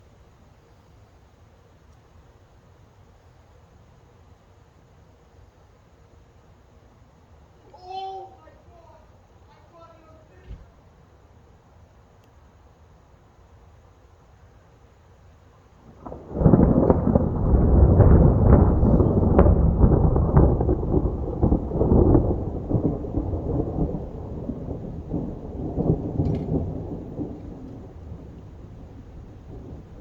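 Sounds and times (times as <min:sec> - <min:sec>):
thunder crack and rumble: 0:15.8 - 0:30.0.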